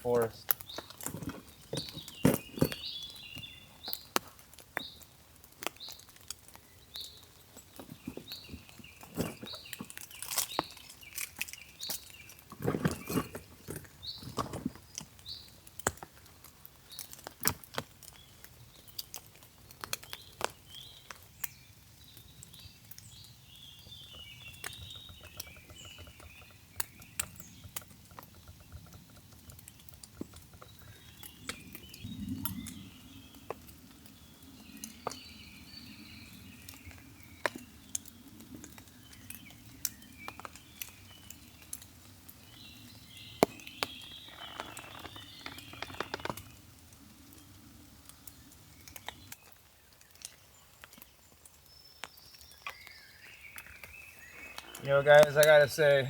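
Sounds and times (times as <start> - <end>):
raindrops tapping on a tarp: 0.0 - 56.0
small birds chirping: 0.0 - 56.0.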